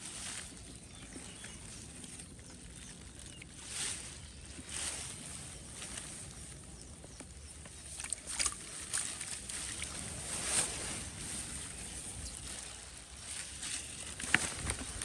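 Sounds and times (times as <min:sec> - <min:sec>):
shallow water sloshing and splashing: 0:00.0 - 0:15.0
steady soft hiss: 0:03.6 - 0:15.0.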